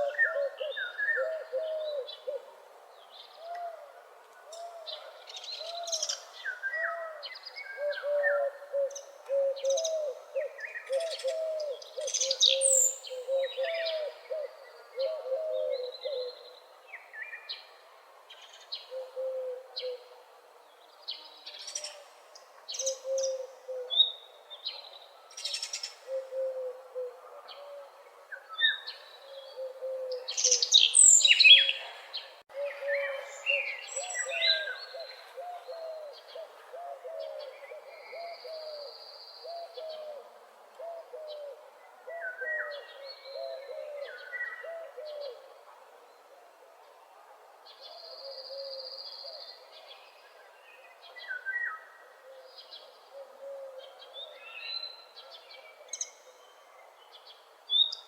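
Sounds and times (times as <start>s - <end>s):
birds singing and chirping: 4.5s - 17.7s, 21.1s - 40.2s, 40.8s - 45.5s.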